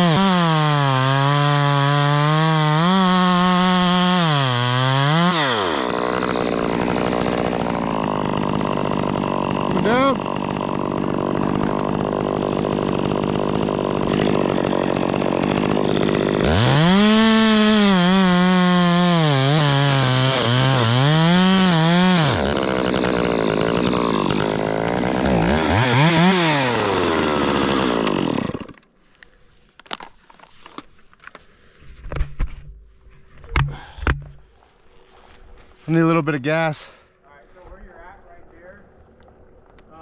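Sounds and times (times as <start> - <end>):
chainsaw cutting wood: 0.0 - 28.9.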